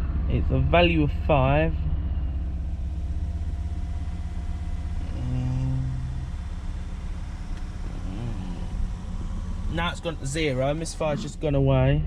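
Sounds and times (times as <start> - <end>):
car engine running with misfire: 0.0 - 12.0.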